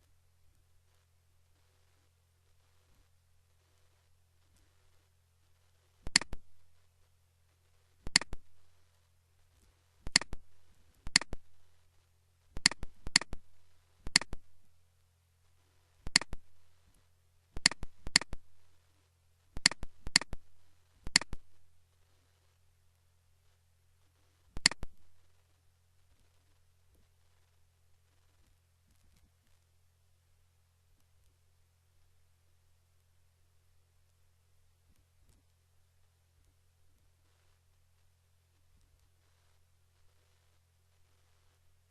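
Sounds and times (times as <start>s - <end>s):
faint low hum: 0.0s - 41.9s
computer mouse clicking: 6.1s - 6.5s, 8.1s - 8.5s, 10.0s - 11.5s, 12.6s - 13.5s, 14.1s - 14.5s, 16.1s - 16.5s, 17.6s - 18.4s, 19.6s - 20.4s, 21.1s - 21.5s, 24.6s - 25.0s.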